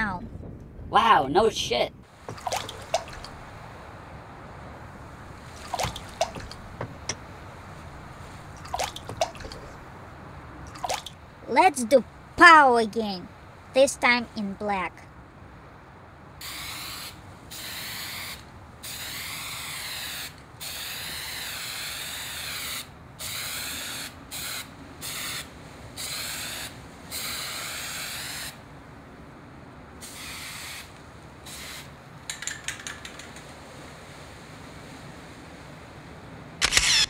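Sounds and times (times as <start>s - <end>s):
spray-paint can hissing: 16.4s - 25.4s.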